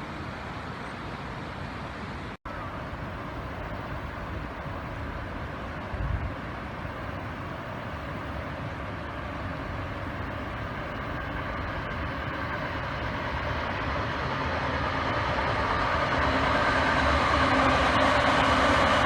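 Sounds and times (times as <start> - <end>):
steady whining tones: 2.5 - 19.0
vehicle approaching rumble: 2.5 - 19.0.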